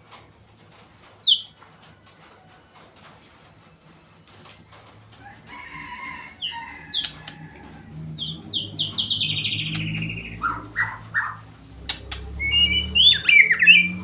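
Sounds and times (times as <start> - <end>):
songbird singing: 1.2 - 1.6, 5.9 - 14.0.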